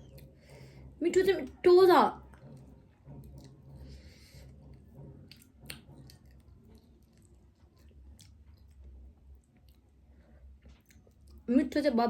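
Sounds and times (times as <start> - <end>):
chewing crab: 2.3 - 11.5.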